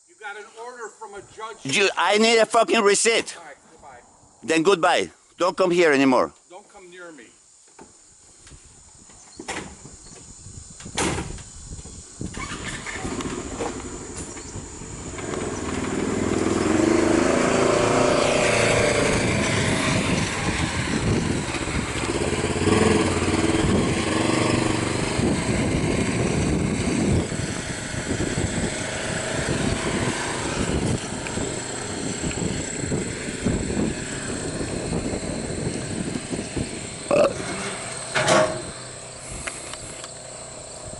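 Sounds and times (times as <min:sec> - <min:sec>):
vehicle engine running: 0:13.0 - 0:40.9.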